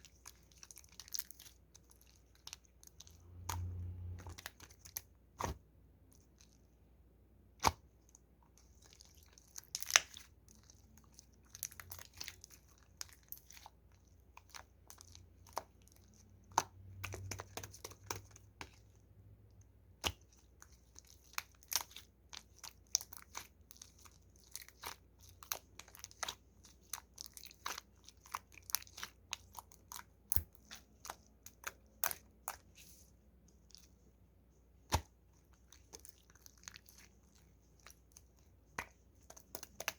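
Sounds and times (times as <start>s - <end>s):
slime clicking and popping: 9.6s - 10.2s.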